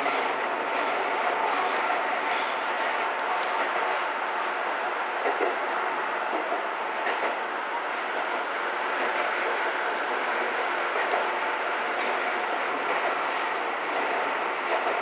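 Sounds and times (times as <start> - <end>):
faint rail clicks: 0.0 - 4.6, 12.0 - 15.0
train wheels rolling on rail: 0.0 - 15.0.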